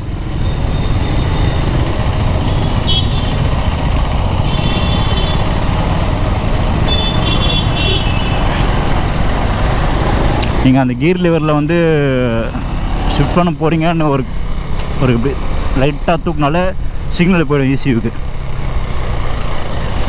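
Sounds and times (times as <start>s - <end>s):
motorcycle wind and road noise: 0.0s - 20.0s
car horn toots: 2.4s - 3.6s, 4.4s - 5.6s, 6.8s - 8.7s.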